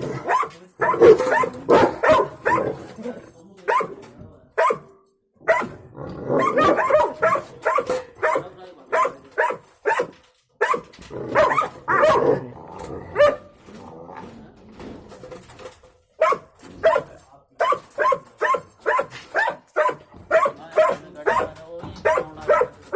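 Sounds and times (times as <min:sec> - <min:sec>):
dog barking: 0:00.2 - 0:02.8, 0:03.7 - 0:04.0, 0:04.6 - 0:05.8, 0:06.4 - 0:12.4, 0:13.1 - 0:13.6, 0:16.2 - 0:22.9.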